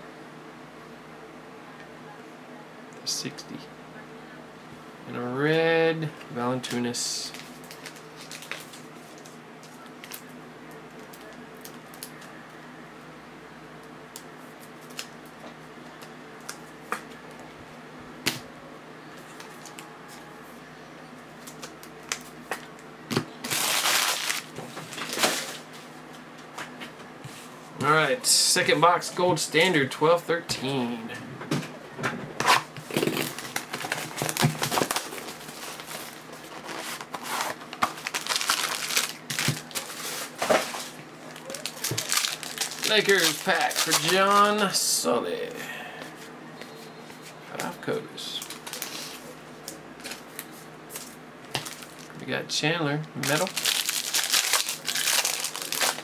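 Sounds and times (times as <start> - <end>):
steady low hum: 0.0 - 56.0
plastic wrapping crinkling and tearing: 6.6 - 10.3, 23.1 - 25.7, 32.5 - 44.6, 48.4 - 52.2, 53.2 - 56.0.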